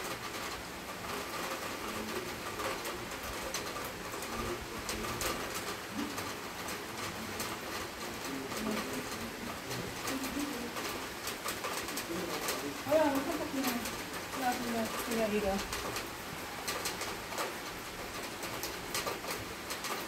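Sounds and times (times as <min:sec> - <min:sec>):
heavy rain falling: 0:00.0 - 0:20.0
pigeon cooing: 0:09.7 - 0:11.0.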